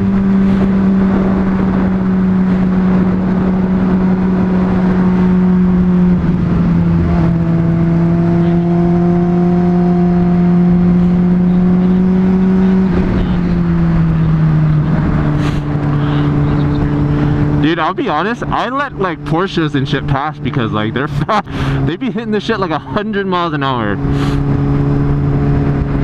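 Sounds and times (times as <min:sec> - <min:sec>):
wind rush on microphone: 0:00.0 - 0:17.6, 0:24.0 - 0:26.0
motorcycle engine cruising: 0:00.0 - 0:26.0.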